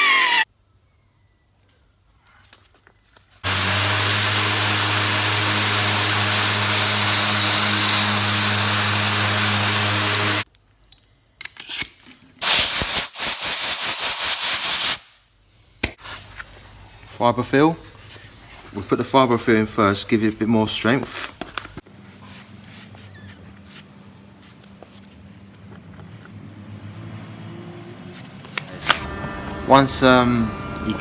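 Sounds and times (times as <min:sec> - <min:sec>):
belt sander motor hum: 0:00.0 - 0:00.4, 0:03.4 - 0:10.4, 0:23.5 - 0:31.0.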